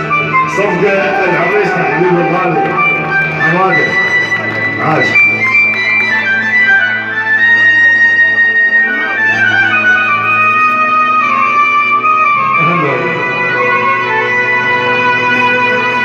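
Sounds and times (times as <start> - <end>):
instrumental party music: 2.5 - 10.5.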